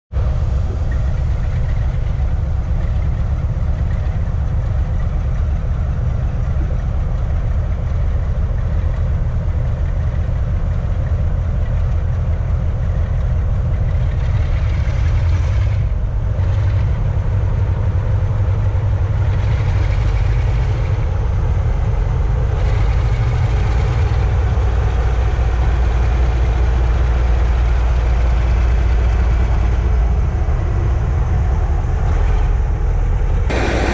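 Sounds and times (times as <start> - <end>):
heavy engine idling: 0.2 - 31.8, 33.5 - 33.9.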